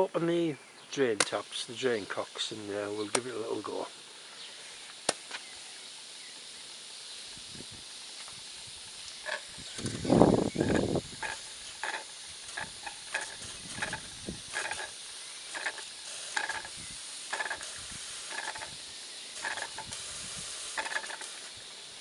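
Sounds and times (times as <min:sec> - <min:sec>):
steam hissing: 0:01.0 - 0:22.0
steam engine spitting chuffs: 0:09.2 - 0:21.6.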